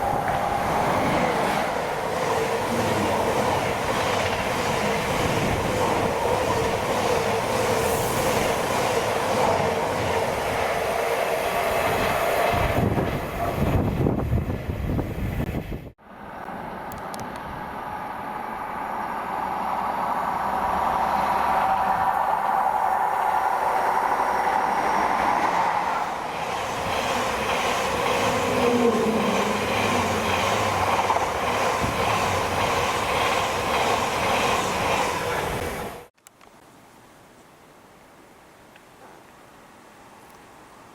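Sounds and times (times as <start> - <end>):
train wheel clatter: 0.0 - 14.1, 24.7 - 36.1
train running on rails: 0.0 - 36.1.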